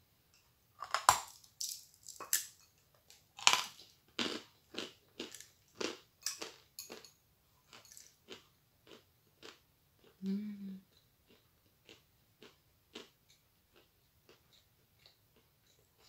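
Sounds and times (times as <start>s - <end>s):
person crunching a cookie: 0.8s - 7.1s, 7.7s - 10.2s, 10.9s - 16.0s.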